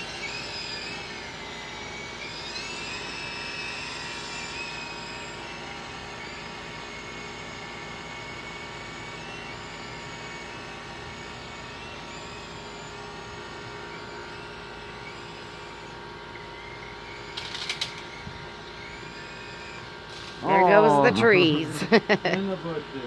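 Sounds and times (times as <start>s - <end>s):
rc helicopter motor whining: 0.0s - 23.0s.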